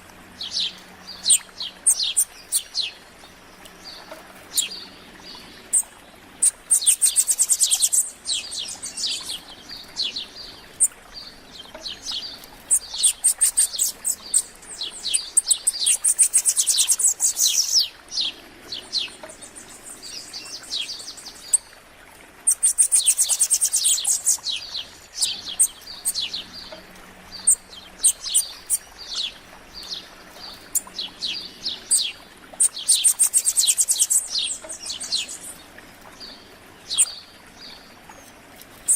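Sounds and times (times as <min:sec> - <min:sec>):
bird chirps: 0:05.7 - 0:10.9, 0:11.6 - 0:18.3, 0:22.5 - 0:35.6.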